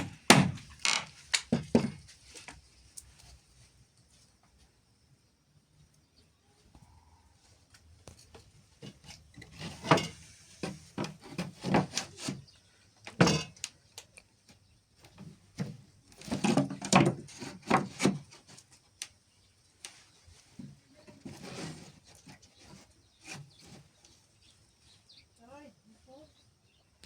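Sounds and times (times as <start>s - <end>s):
objects knocking and clattering: 0.0s - 2.1s, 8.1s - 12.4s, 13.0s - 13.7s, 15.2s - 18.4s.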